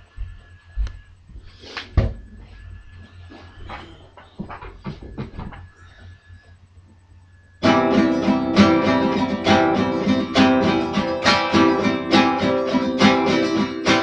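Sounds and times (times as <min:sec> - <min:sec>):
acoustic guitar strumming: 0:07.6 - 0:14.0.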